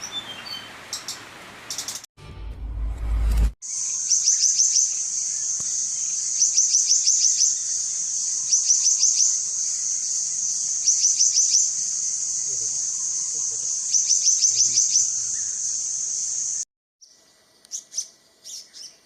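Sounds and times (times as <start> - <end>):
low rumble: 2.2 - 3.6
songbird chirping: 3.7 - 19.0.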